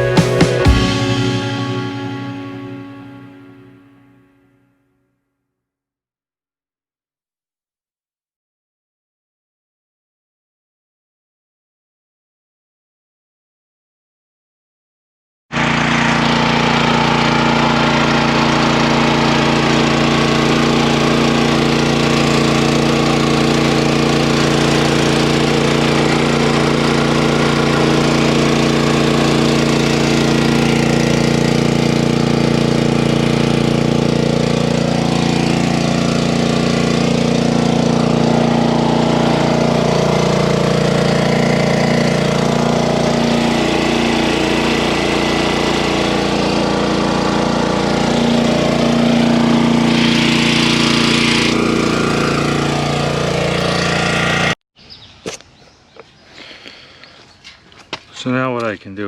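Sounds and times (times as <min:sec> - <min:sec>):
engine running steadily: 0:00.0 - 0:04.2, 0:15.6 - 0:54.6.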